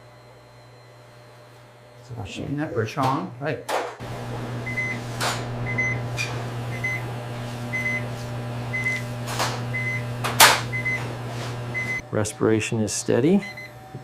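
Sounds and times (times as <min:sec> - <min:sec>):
medical monitor beeping: 0:04.6 - 0:09.1, 0:09.7 - 0:12.0, 0:13.4 - 0:13.7.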